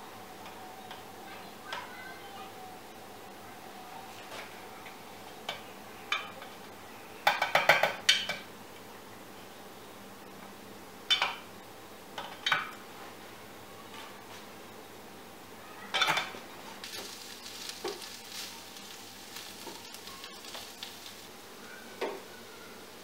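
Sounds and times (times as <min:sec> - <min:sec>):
dishes and utensils clinking: 0:15.9 - 0:21.3.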